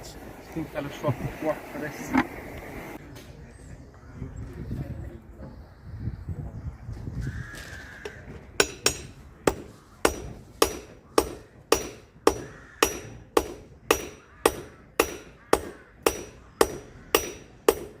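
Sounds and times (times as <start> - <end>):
hammer striking anvil: 8.6 - 18.0.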